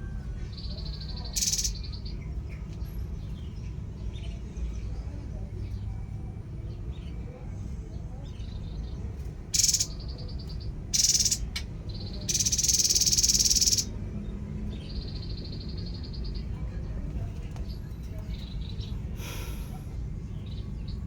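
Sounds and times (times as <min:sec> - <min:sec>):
buzzy bird trills: 0:00.5 - 0:02.2, 0:09.5 - 0:13.9.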